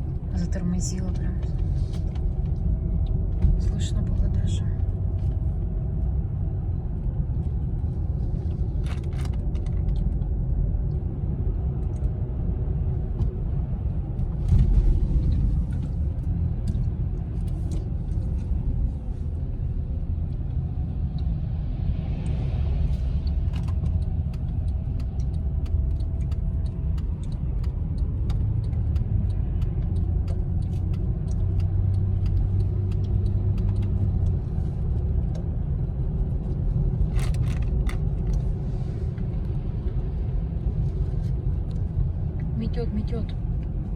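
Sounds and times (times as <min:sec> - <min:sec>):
car cabin road rumble: 0:00.0 - 0:43.9.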